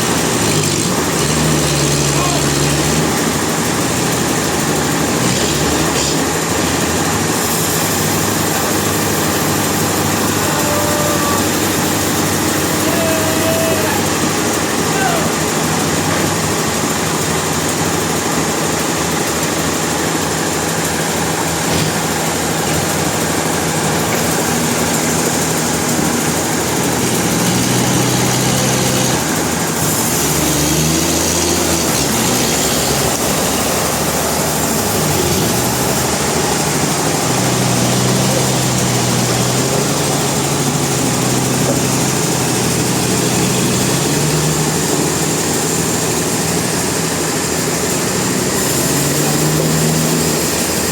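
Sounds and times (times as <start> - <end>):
heavy engine drone: 0.0 - 50.9
mechanical hiss and clatter: 15.4 - 30.4.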